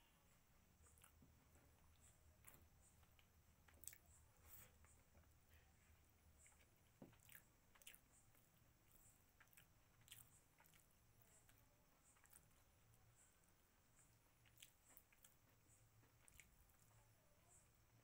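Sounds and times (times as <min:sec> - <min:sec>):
person chewing: 0:00.8 - 0:01.2, 0:02.0 - 0:05.0, 0:06.4 - 0:12.6, 0:14.0 - 0:15.4, 0:16.2 - 0:16.9
wet mouth clicks: 0:02.5 - 0:04.0
fingers picking at food: 0:14.0 - 0:17.0.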